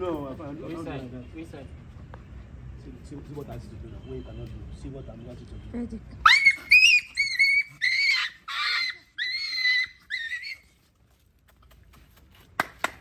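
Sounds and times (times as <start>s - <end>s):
dog yelping: 6.2s - 10.7s.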